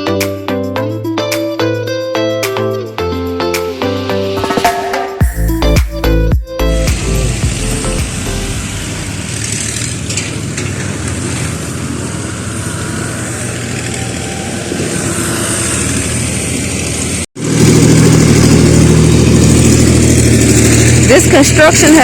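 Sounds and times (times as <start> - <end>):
street noise: 3.4 - 22.0
engines running: 4.0 - 22.0
heavy engine hum close by: 5.3 - 22.0.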